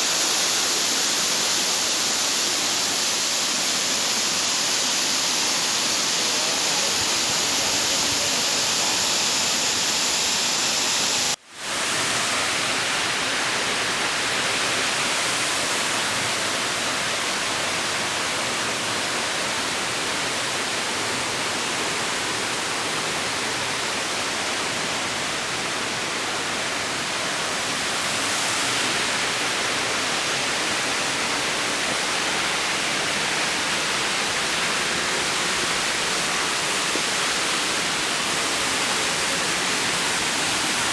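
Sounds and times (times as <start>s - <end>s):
waterfall rushing: 0.0s - 21.5s, 24.6s - 40.9s.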